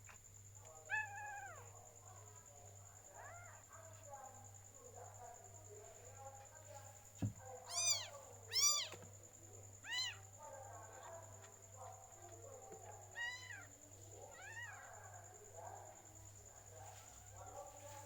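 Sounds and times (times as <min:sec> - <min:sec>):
cat mewing: 0:00.9 - 0:01.7, 0:07.7 - 0:09.0, 0:09.8 - 0:10.3, 0:13.1 - 0:13.7, 0:14.3 - 0:14.9.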